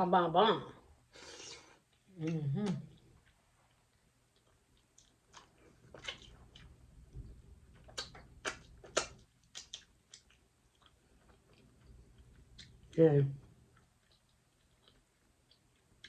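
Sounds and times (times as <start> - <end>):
mouth clicks and lip smacks: 1.9 - 6.8, 7.7 - 12.9
chewing: 1.9 - 16.0.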